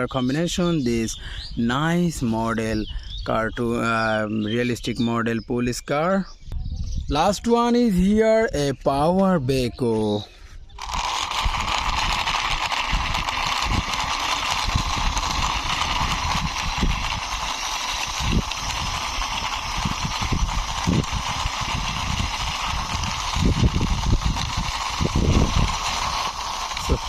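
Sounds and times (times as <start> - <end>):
toy wheels rolling and knocking: 10.7 - 27.0.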